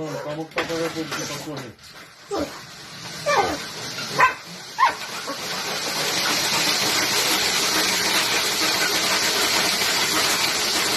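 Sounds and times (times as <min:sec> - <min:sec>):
dog whining yelp: 0:03.2 - 0:05.0.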